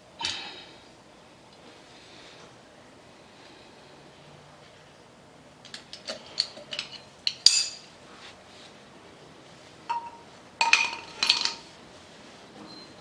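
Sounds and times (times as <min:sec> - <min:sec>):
metal tools clinking: 0:05.8 - 0:07.9, 0:09.9 - 0:11.7.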